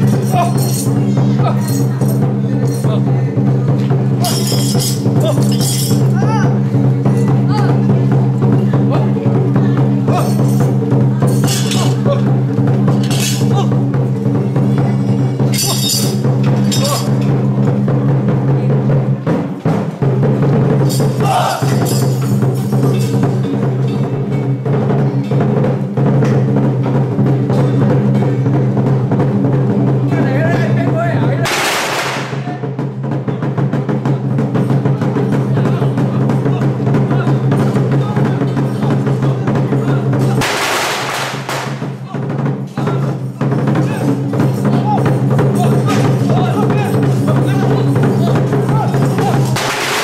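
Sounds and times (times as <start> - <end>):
drum and gong percussion band: 0.0 - 50.0
metal percussion clash: 0.0 - 50.0
loud crashing burst: 31.4 - 32.5, 40.4 - 41.9, 49.5 - 50.0.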